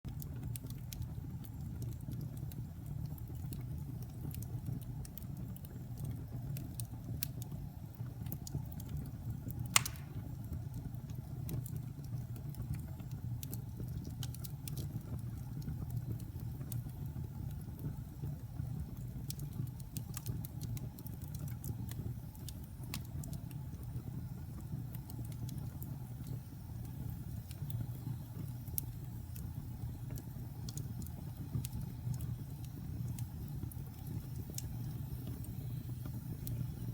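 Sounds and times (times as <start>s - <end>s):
fire crackling: 0.1s - 36.9s
fire flames rumbling: 0.1s - 36.9s
loud sharp pop: 9.8s - 10.2s.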